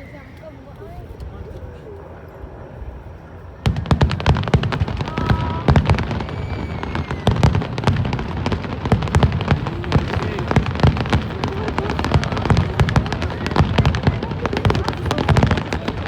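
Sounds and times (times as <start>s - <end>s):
low fireworks booms: 2.8s - 16.0s
fireworks bangs and crackles: 3.6s - 16.0s.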